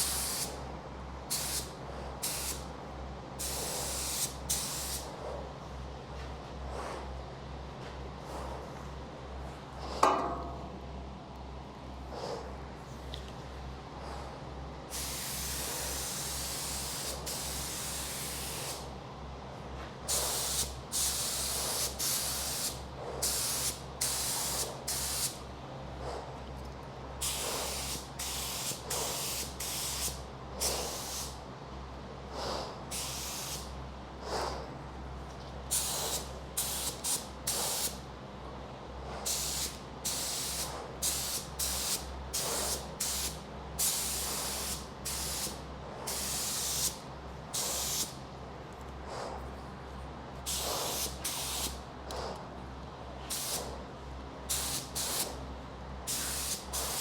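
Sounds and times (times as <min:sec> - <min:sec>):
spray gun hissing: 0:00.0 - 0:00.5, 0:01.3 - 0:02.6, 0:03.4 - 0:05.0, 0:14.9 - 0:18.8, 0:20.1 - 0:25.4, 0:27.2 - 0:31.4, 0:32.9 - 0:33.7, 0:35.7 - 0:37.9, 0:39.3 - 0:47.0, 0:47.6 - 0:48.1, 0:50.5 - 0:51.8, 0:53.3 - 0:53.7, 0:54.5 - 0:55.4, 0:56.1 - 0:57.0
steady low hum: 0:00.0 - 0:57.0.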